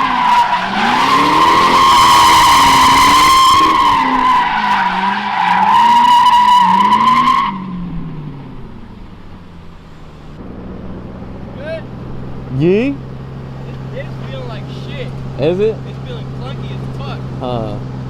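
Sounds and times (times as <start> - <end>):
tyres squealing: 0.0 - 7.8, 11.5 - 17.9
car engine revving: 0.0 - 18.0.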